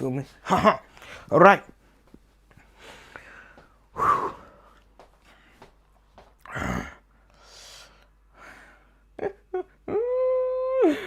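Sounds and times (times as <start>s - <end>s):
man breathing and sighing: 0.8s - 9.4s.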